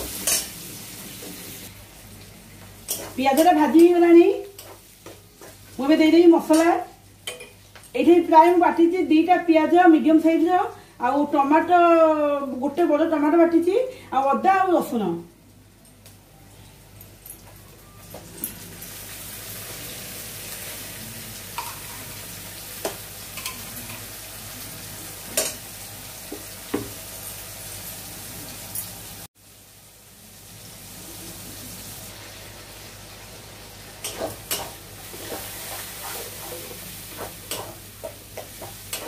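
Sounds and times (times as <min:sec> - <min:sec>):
paste sizzling in hot oil: 0:29.4 - 0:39.0
metal spatula scraping a pan: 0:34.0 - 0:39.0.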